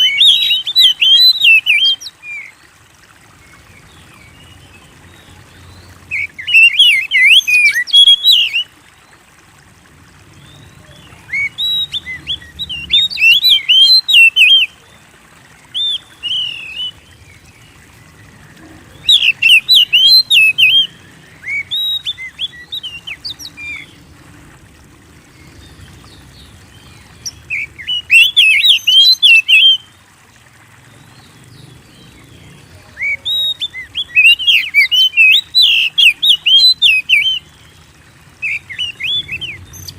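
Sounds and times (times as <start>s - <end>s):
bird singing whistled notes: 0.0s - 2.5s, 5.2s - 8.7s, 10.4s - 14.8s, 15.7s - 17.2s, 19.0s - 24.0s, 27.2s - 29.9s, 32.8s - 37.5s, 38.4s - 39.9s.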